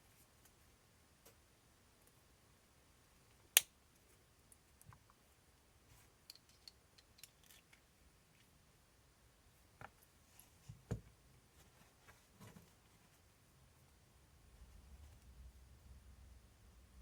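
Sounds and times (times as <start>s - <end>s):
light ticks of small parts: 3.3s - 5.3s, 5.9s - 8.6s.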